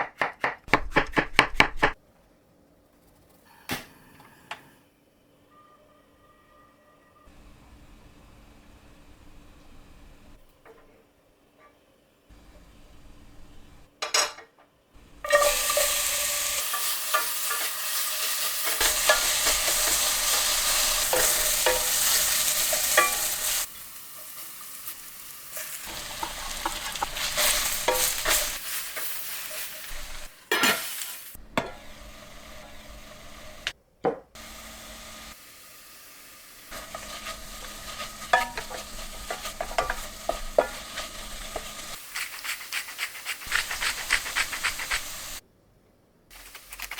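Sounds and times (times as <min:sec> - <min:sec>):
mushrooms sizzling in a pan: 0:15.0 - 0:33.7, 0:34.4 - 0:45.4
spatula scraping a pan: 0:15.2 - 0:31.1, 0:36.7 - 0:45.4.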